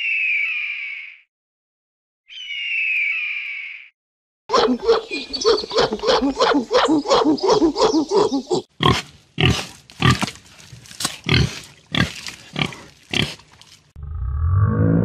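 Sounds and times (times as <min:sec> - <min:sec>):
gorilla hooting: 0:04.5 - 0:08.7
pig grunting: 0:04.5 - 0:13.6.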